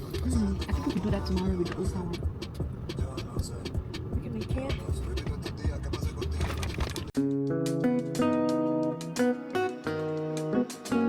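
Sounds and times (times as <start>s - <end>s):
strummed guitar chords: 7.2s - 11.0s.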